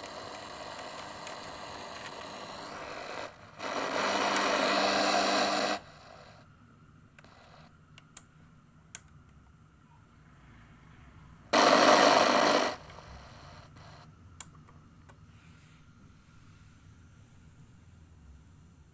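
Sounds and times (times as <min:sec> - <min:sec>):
radio static hiss: 0:00.0 - 0:06.4, 0:07.2 - 0:07.7, 0:11.5 - 0:14.1.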